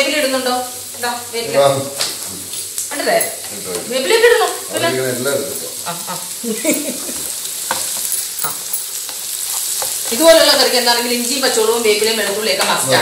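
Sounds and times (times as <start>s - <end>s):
people talking: 0.0s - 7.2s, 10.1s - 13.0s
spices sizzling in a pan: 0.0s - 13.0s.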